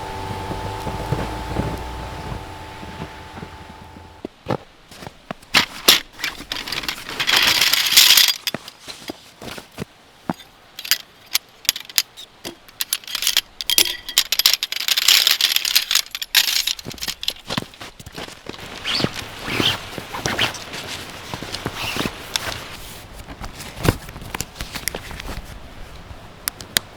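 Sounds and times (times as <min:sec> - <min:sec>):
hissing rustle: 0:00.0 - 0:04.2, 0:04.9 - 0:26.1
objects clicking and rattling: 0:05.6 - 0:09.6, 0:10.3 - 0:17.8.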